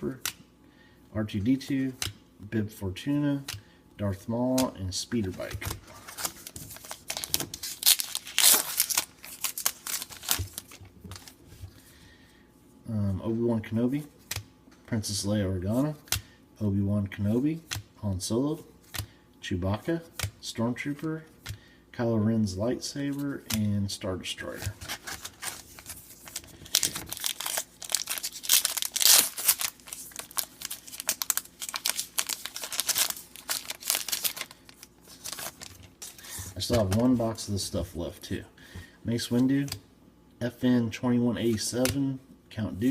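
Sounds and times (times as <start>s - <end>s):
cards being handled: 4.5s - 11.8s, 24.4s - 37.5s
card pack wrapper tearing and crinkling: 6.1s - 11.3s, 24.8s - 36.4s.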